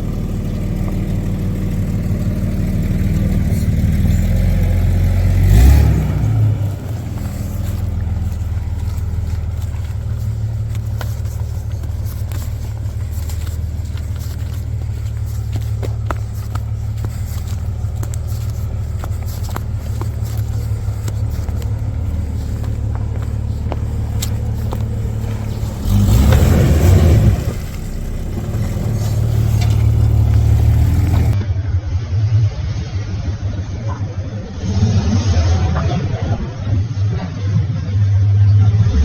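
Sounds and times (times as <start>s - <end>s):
car engine running and revving: 0.0s - 31.4s.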